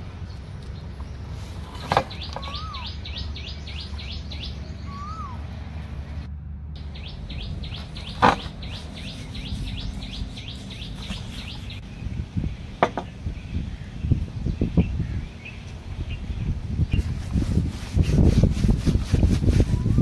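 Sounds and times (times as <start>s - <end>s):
steady low hum: 0.0s - 20.0s
bird rising and falling whistle: 2.2s - 5.4s
bird high descending notes: 2.2s - 5.5s.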